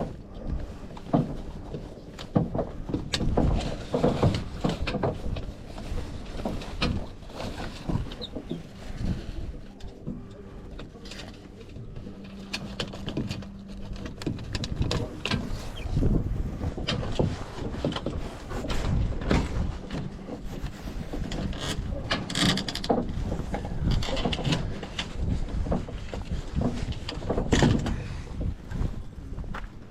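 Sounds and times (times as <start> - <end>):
dinghy rigging knocks and rattles: 0.0 - 29.0
low steady tone: 5.2 - 16.8.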